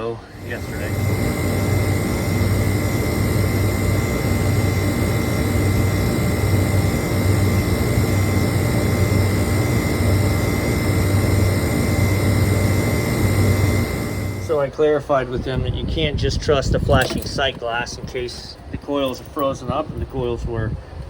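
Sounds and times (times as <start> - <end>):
low hum: 0.0 - 14.7
thin high whine: 0.0 - 14.8
condensing unit drone: 0.0 - 21.0.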